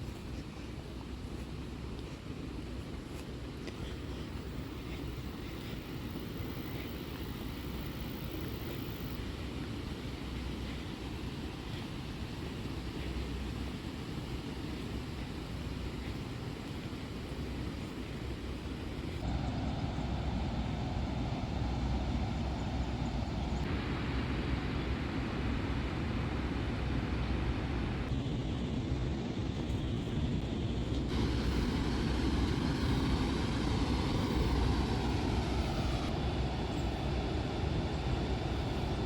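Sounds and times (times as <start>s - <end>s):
river rushing over a dam: 31.1s - 39.0s.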